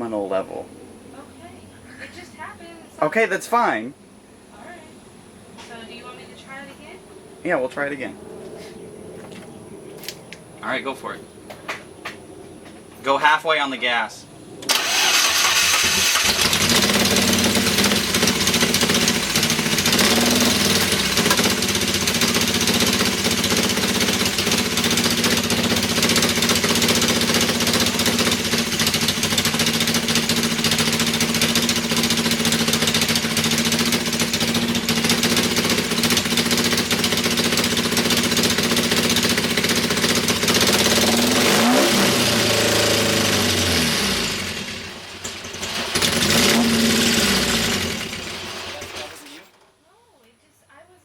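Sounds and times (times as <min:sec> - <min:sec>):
car engine revving unsteadily: 0:14.7 - 0:49.4.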